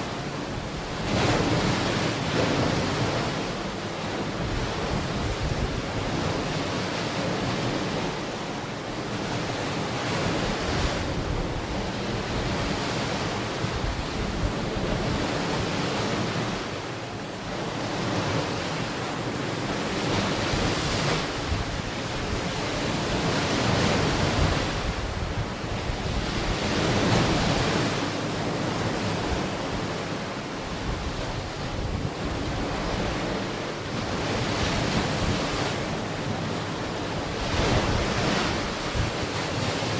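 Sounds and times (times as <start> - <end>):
ocean waves on shore: 0.0 - 39.9
wind buffeting microphone: 19.8 - 28.0, 30.7 - 36.4.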